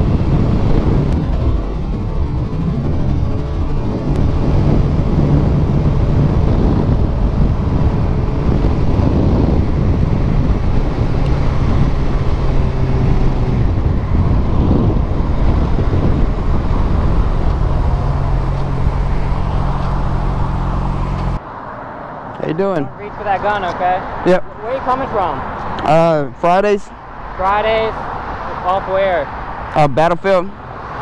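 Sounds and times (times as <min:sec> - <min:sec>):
wind rushing over microphone: 0:00.0 - 0:21.4
motorcycle engine while riding: 0:00.0 - 0:21.5.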